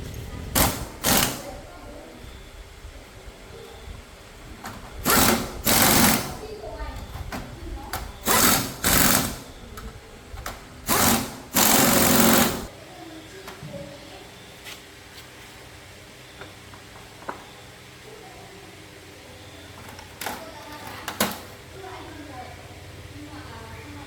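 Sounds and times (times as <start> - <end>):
power tool rattling: 0.5 - 1.6, 4.8 - 6.6, 8.2 - 9.6, 10.4 - 12.7.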